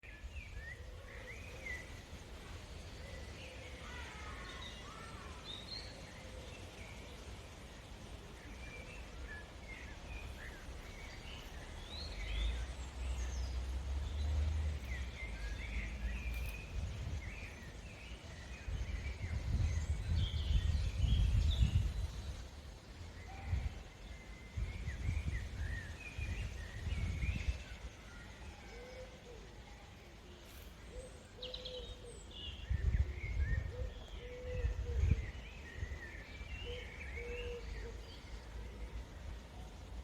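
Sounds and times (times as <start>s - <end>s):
birds chirping and singing: 30.5s - 39.8s.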